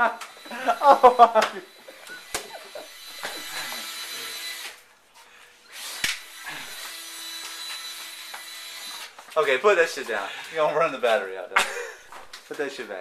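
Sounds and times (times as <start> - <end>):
cordless drill running unloaded: 0.2 - 4.8, 5.7 - 9.2.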